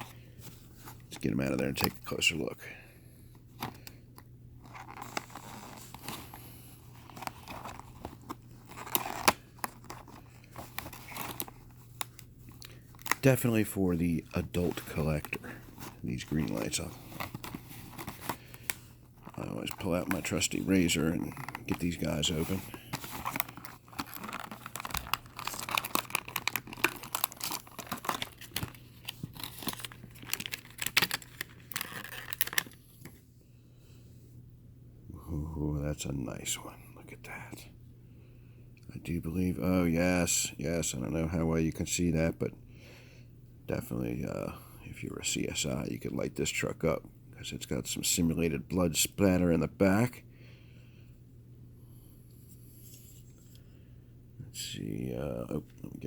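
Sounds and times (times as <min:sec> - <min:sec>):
plastic packaging crinkling: 0:04.6 - 0:33.0
razor cutting plastic packaging: 0:23.2 - 0:32.6.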